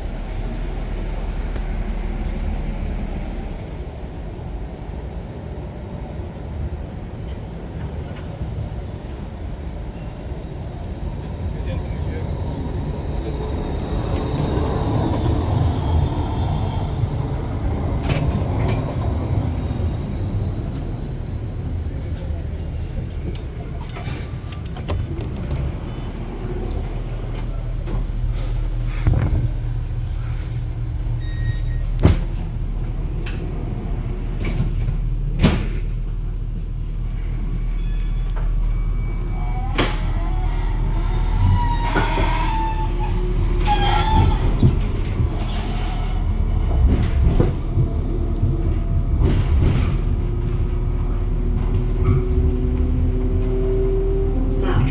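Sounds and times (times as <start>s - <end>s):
tram running gear rumble: 0.0s - 54.9s
faint wheel squeal: 7.1s - 19.0s, 26.6s - 32.5s, 37.2s - 47.6s
high thin wheel squeal: 31.2s - 31.9s, 37.7s - 46.2s.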